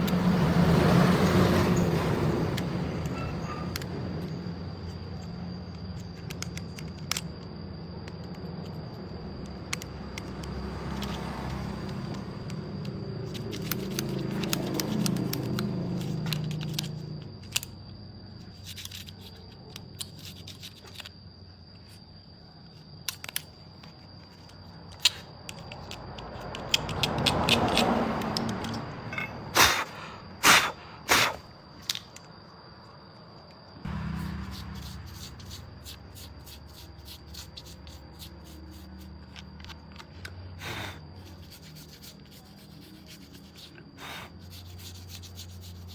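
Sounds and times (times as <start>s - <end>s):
low vehicle rumble: 33.8s - 35.1s.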